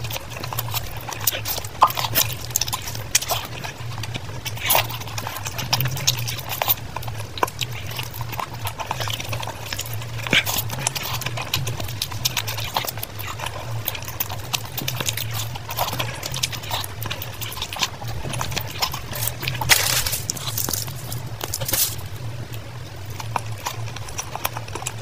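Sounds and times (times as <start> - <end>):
wet chewing and lip smacks: 0.0 - 25.0.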